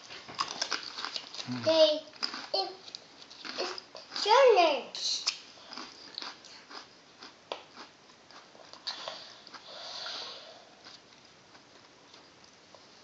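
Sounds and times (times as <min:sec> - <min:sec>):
child chewing: 0:00.0 - 0:13.0
soft breath: 0:08.8 - 0:10.9.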